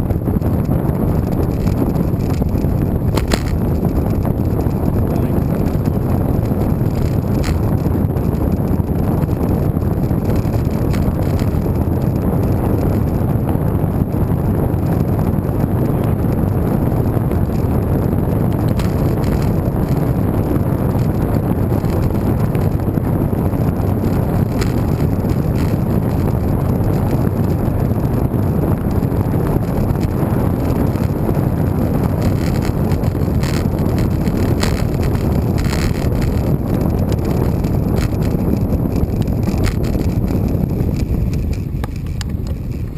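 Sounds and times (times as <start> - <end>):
bicycle rolling noise: 0.0 - 42.9
wind rushing over microphone: 0.0 - 42.9.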